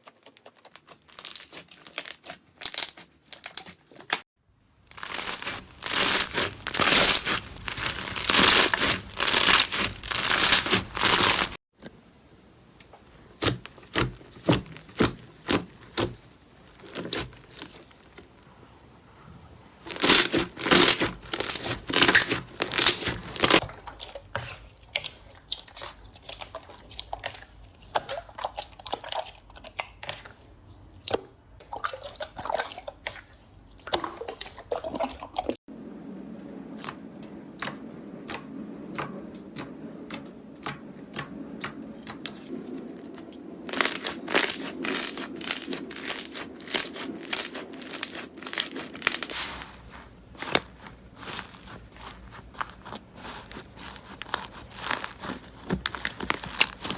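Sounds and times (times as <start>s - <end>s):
slime crackling and popping: 0.0s - 4.2s, 4.9s - 11.6s, 13.3s - 18.4s, 19.8s - 23.6s, 43.0s - 49.6s, 50.2s - 56.9s
low steady hum: 35.7s - 56.9s.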